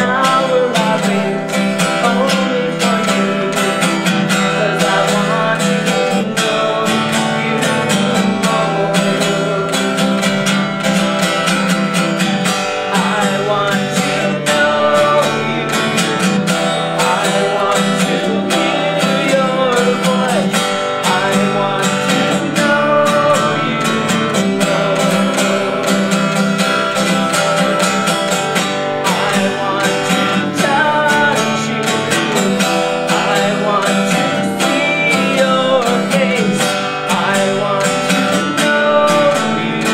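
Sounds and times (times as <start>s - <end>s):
strummed acoustic guitar: 0.0s - 39.9s.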